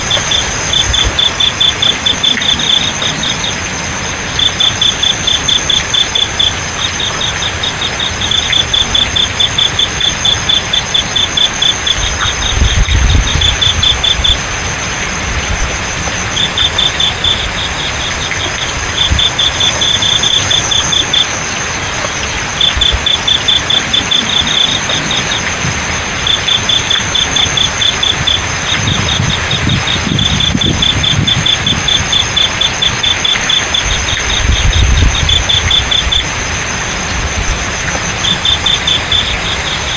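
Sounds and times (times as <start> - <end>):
crickets chirping: 0.0 - 39.9
flowing water hiss: 0.0 - 39.9
high insect whine: 0.0 - 39.9.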